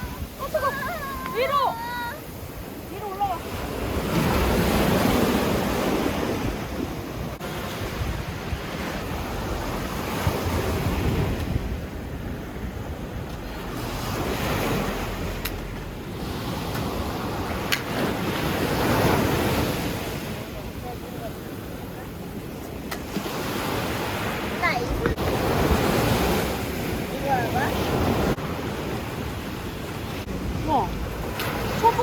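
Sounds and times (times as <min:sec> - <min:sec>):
sea waves breaking: 0:00.0 - 0:32.0
wind buffeting microphone: 0:00.0 - 0:32.0.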